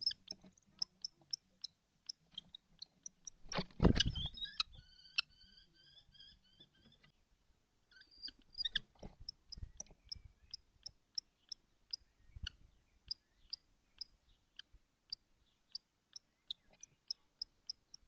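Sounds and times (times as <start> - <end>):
kestrel calling in high peeps: 0.0 - 2.2, 2.8 - 7.0, 7.9 - 8.9
low thumps or rustles: 3.4 - 4.4.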